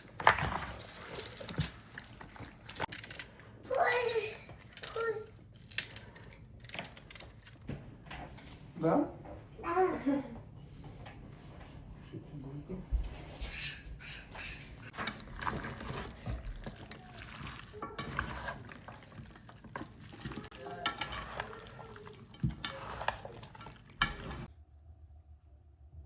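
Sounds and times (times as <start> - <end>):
spoon scraping in pot: 14.9 - 24.5.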